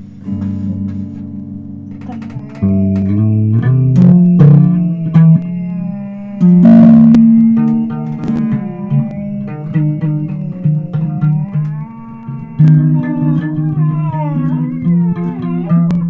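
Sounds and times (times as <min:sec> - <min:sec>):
electric bass: 0:00.0 - 0:16.0
guitar playing: 0:00.0 - 0:16.0
wavering high melody: 0:00.0 - 0:16.0.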